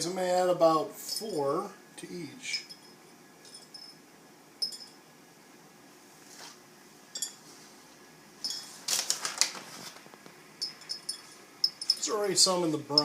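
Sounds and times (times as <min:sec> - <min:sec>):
berries clinking into glass jars: 0:10.6 - 0:12.2.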